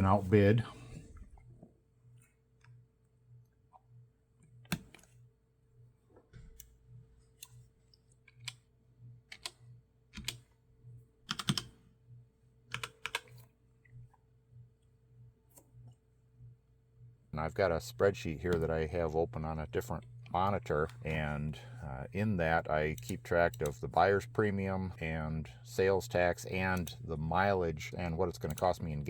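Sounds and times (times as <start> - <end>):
faint steady hum: 0.0 - 29.0
computer mouse clicks: 4.6 - 5.1
keystrokes: 9.3 - 9.6, 11.3 - 11.7, 12.7 - 13.4.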